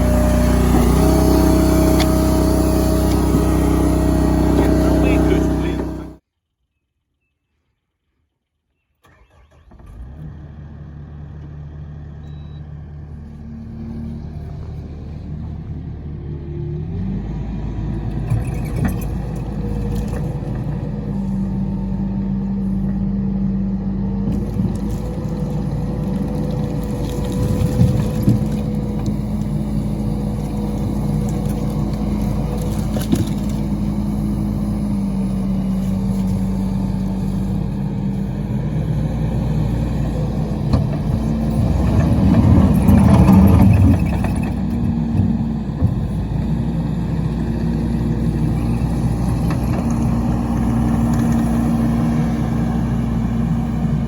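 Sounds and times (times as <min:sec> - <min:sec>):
machine engine running: 0:00.0 - 0:06.2, 0:13.0 - 0:54.0.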